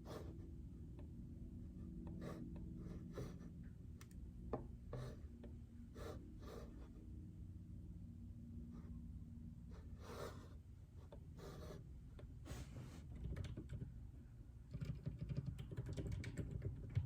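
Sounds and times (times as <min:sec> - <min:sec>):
steady low hum: 0:00.0 - 0:17.0
soft keyboard keystrokes: 0:13.2 - 0:13.9, 0:14.7 - 0:17.0.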